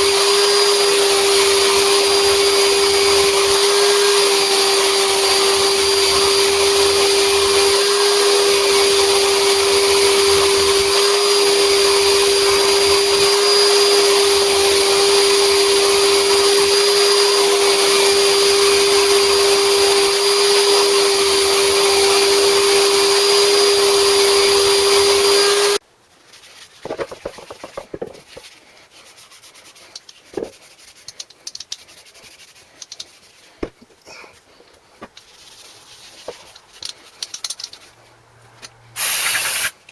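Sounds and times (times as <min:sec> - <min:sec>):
electric motor whining: 0:00.0 - 0:25.8.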